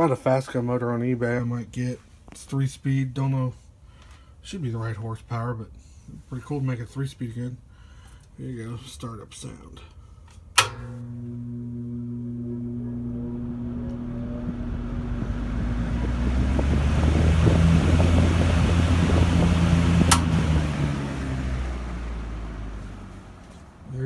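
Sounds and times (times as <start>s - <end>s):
sharp click: 10.6s - 10.9s, 20.1s - 20.4s
fan motor humming rising pitch: 10.7s - 24.0s
rush of air: 14.0s - 22.2s.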